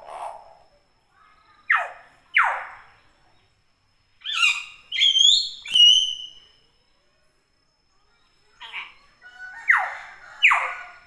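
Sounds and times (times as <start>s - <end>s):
myna calling and whistling: 1.7s - 2.9s, 4.2s - 6.5s, 8.6s - 11.0s.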